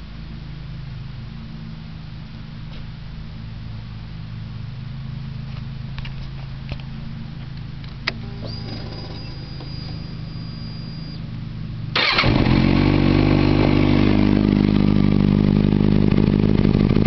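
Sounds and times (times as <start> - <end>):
motorcycle engine idling: 8.2 - 17.0.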